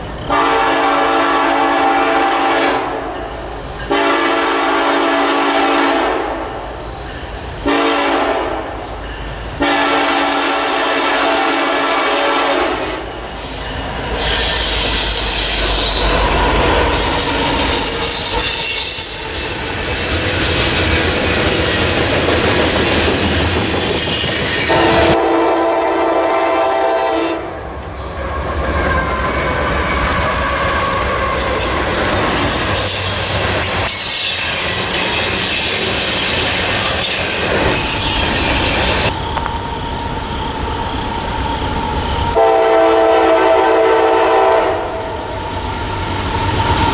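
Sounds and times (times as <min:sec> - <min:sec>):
train wheels rumbling on rail: 0:00.0 - 0:46.9
locomotive horn chord: 0:00.3 - 0:03.0, 0:03.9 - 0:06.4, 0:07.7 - 0:08.7, 0:09.6 - 0:13.0, 0:24.7 - 0:27.5, 0:42.4 - 0:45.2
wheel squeal: 0:13.2 - 0:25.2, 0:28.2 - 0:42.4.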